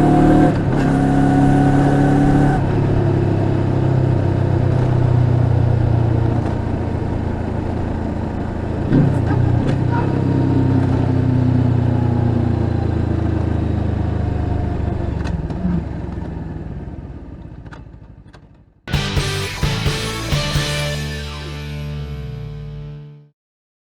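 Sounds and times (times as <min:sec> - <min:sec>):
motorcycle engine running: 0:18.9 - 0:22.4.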